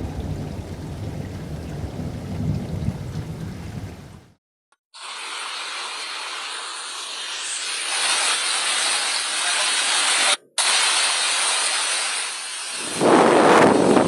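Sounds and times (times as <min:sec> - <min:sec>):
heavy water hissing: 0:05.0 - 0:14.0.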